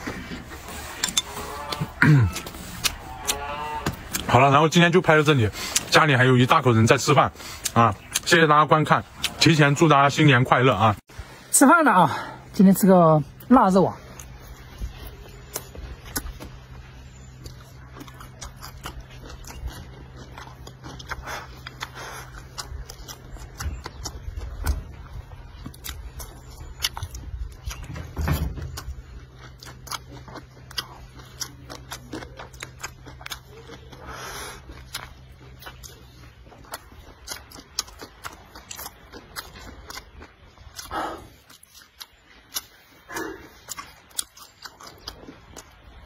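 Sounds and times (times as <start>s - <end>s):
man chewing: 0.0s - 9.8s, 13.3s - 46.0s
wet mouth clicks and smacks: 36.6s - 45.8s.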